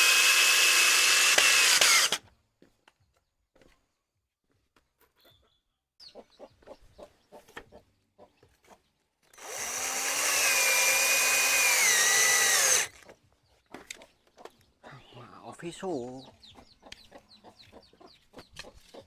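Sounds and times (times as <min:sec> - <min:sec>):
power drill running: 0:00.0 - 0:02.2, 0:09.4 - 0:12.9.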